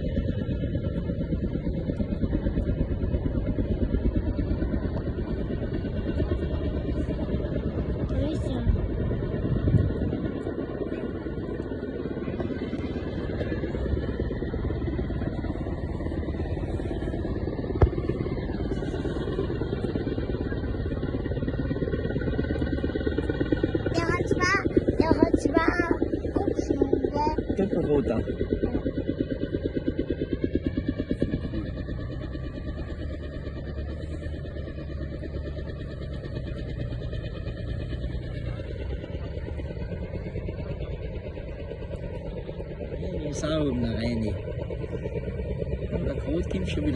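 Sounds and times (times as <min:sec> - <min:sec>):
helicopter rotors beating: 0:00.0 - 0:46.9.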